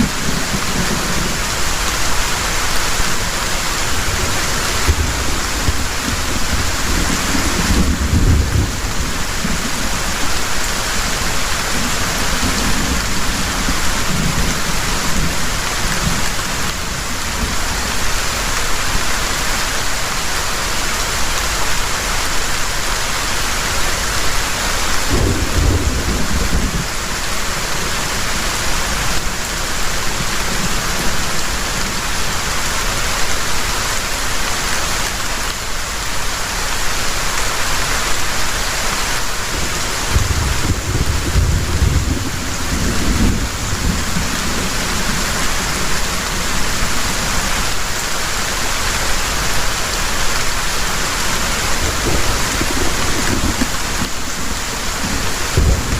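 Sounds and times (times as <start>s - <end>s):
thunder rumbling: 0.0s - 18.2s, 25.0s - 32.2s, 39.4s - 47.7s, 50.0s - 55.9s
heavy rain falling: 0.0s - 55.9s.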